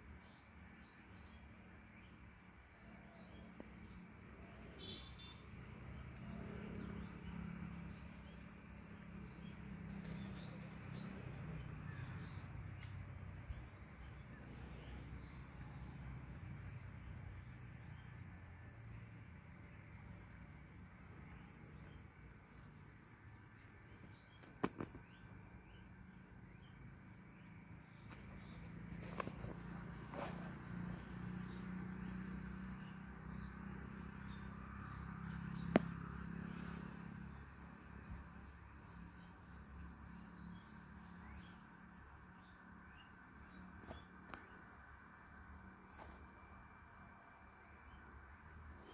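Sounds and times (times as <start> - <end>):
steady low hum: 0.0 - 48.9
faint bird chirps: 4.5 - 5.5.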